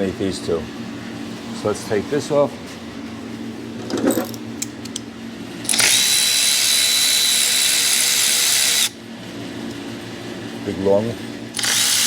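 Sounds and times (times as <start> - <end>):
power drill whining: 5.7 - 8.9, 11.6 - 12.0.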